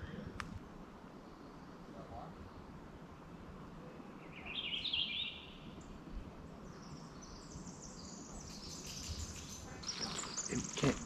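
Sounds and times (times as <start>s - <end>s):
faint outdoor background noise: 0.0s - 11.0s
small songbird singing: 3.9s - 11.0s.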